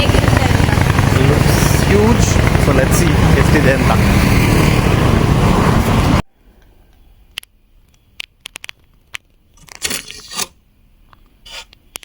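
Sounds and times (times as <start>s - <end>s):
loud street traffic: 0.0s - 6.2s.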